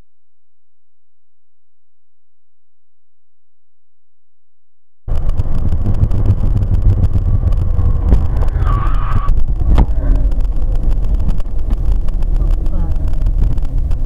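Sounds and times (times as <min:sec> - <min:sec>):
car engine and road noise: 0:05.1 - 0:14.0
short high-pitched squeal: 0:08.3 - 0:09.4.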